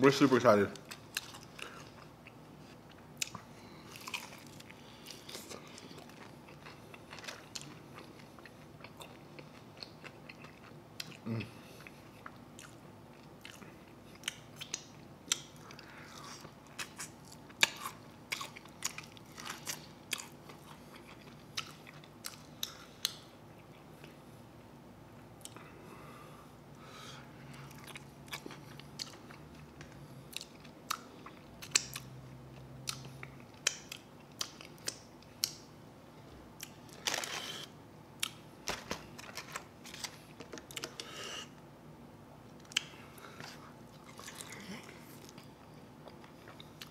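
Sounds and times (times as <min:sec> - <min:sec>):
chewing and mouth smacks: 0:00.8 - 0:11.2, 0:11.8 - 0:24.2, 0:27.6 - 0:35.7, 0:42.6 - 0:46.9.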